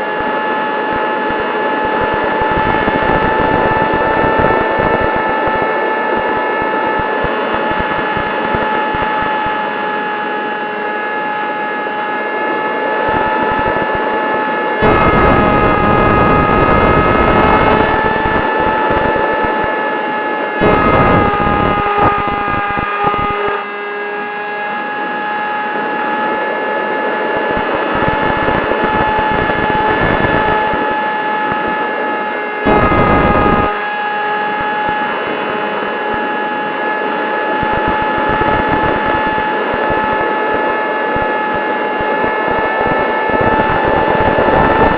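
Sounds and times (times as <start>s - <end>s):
wind buffeting microphone: 1.8s - 9.2s, 37.5s - 44.9s.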